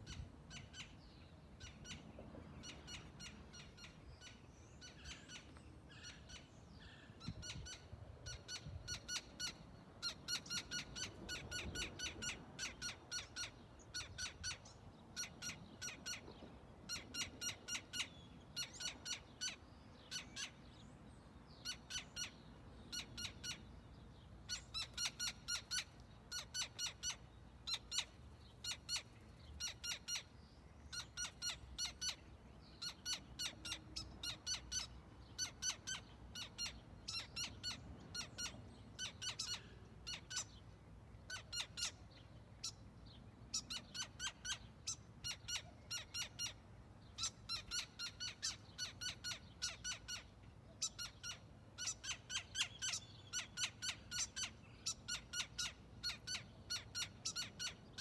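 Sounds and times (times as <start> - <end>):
bird alarm calls: 2.6 - 16.3, 21.6 - 23.7, 24.4 - 30.3, 30.9 - 40.6, 43.5 - 58.0.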